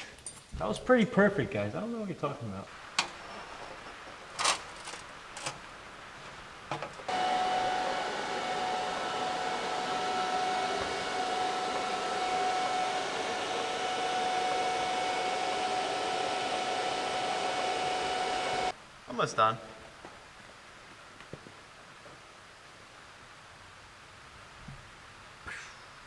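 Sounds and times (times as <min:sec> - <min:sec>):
welding hissing buzz: 0:02.7 - 0:18.8.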